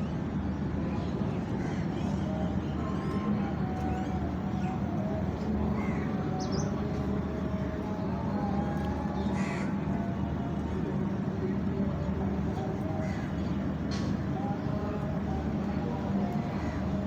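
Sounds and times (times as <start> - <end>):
crows cawing: 9.4 - 9.7.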